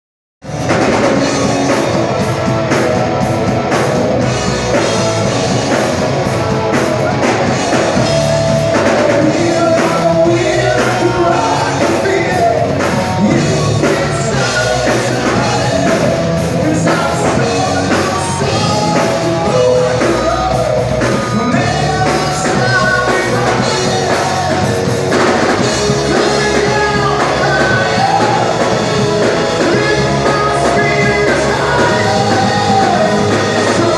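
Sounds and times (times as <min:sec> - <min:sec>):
rock band playing live: 0:00.4 - 0:33.9
person singing: 0:04.5 - 0:33.9.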